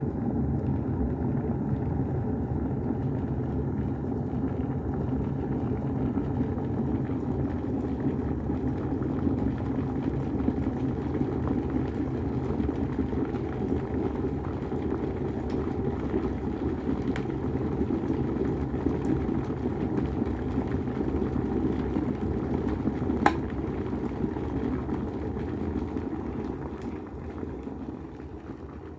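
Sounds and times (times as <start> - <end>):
kettle heating water: 0.0 - 28.9
kettle switch click: 23.2 - 23.5.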